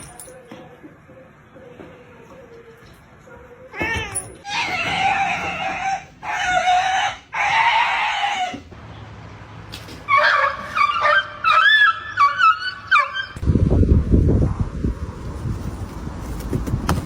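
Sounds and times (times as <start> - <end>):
cat yowling: 3.7 - 8.6
dog yelping: 10.1 - 13.4.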